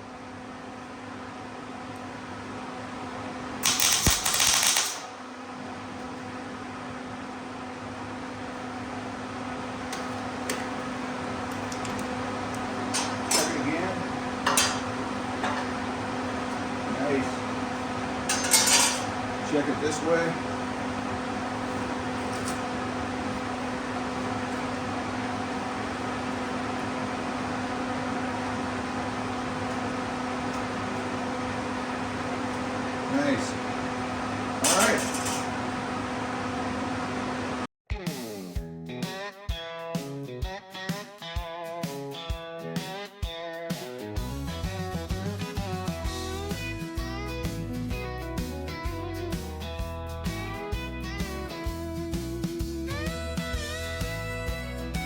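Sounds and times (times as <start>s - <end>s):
machine hum with fan-like rushing: 0.0s - 37.7s
welding arc crackling: 3.6s - 5.1s.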